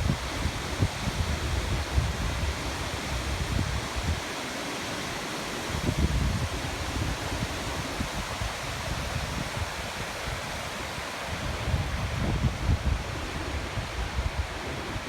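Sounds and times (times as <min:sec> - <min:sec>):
wind buffeting microphone: 0:05.8 - 0:15.0.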